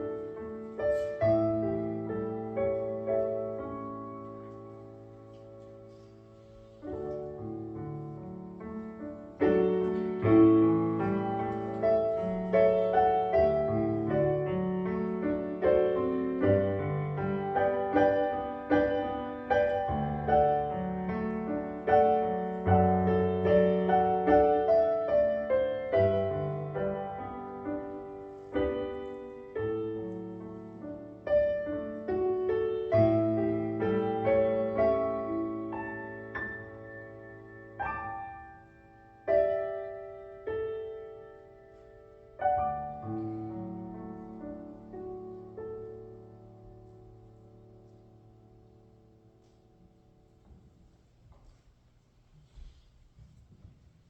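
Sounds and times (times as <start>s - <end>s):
solo piano playing: 0.0s - 50.8s.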